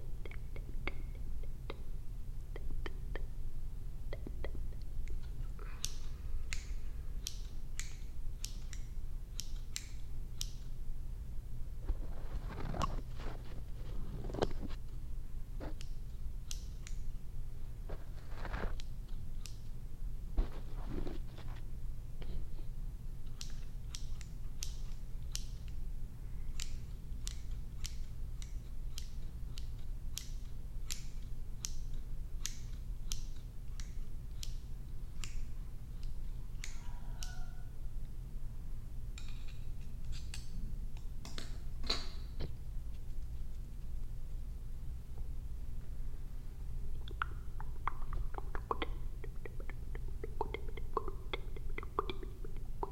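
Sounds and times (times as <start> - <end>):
low steady hum: 0.0 - 52.9
scissors snipping hair: 4.8 - 10.8, 15.6 - 17.2, 18.3 - 19.8, 23.3 - 25.8, 26.5 - 37.5, 39.2 - 41.6
soft rustling: 11.8 - 15.0, 17.8 - 18.8, 20.4 - 21.7.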